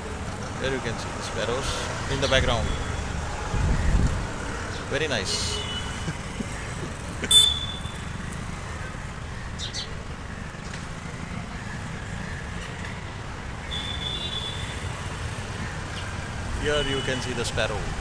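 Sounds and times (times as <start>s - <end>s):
road traffic rumble: 0.0s - 18.0s
sparrows chirping: 8.9s - 10.6s.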